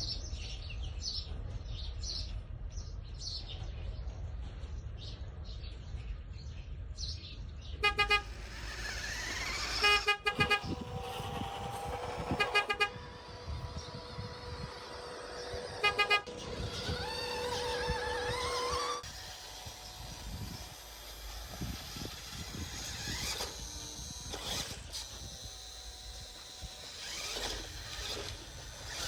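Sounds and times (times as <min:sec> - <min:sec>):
pulsing horn toots: 0:07.8 - 0:19.0
small motor whining: 0:07.8 - 0:29.0.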